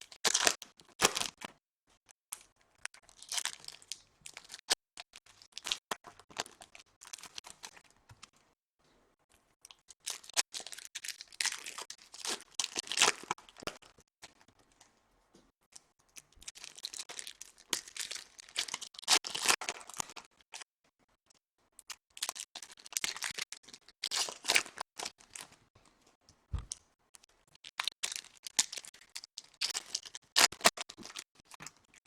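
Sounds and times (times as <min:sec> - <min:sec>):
foil wrappers tearing and crinkling: 0:16.5 - 0:20.1, 0:27.8 - 0:31.6
soft thump: 0:26.5 - 0:26.8.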